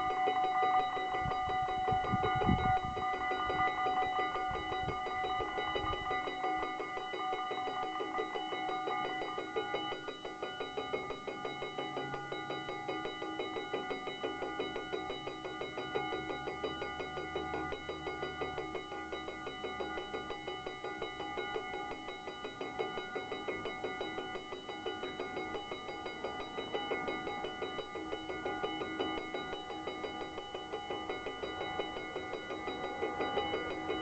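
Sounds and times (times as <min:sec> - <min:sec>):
level crossing bells ringing: 0:23.5 - 0:34.0.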